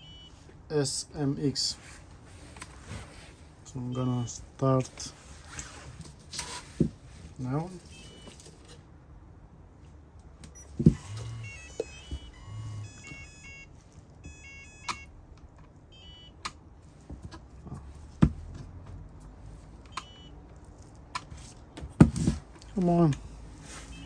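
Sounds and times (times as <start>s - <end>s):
electronic beeps in stepped tones: 0.0s - 0.3s, 10.6s - 15.1s, 15.9s - 16.4s.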